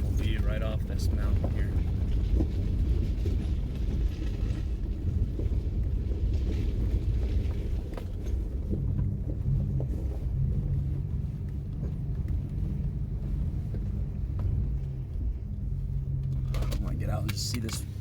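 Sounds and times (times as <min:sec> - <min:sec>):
car cabin rumble: 0:00.0 - 0:18.0
low engine hum: 0:00.0 - 0:18.0.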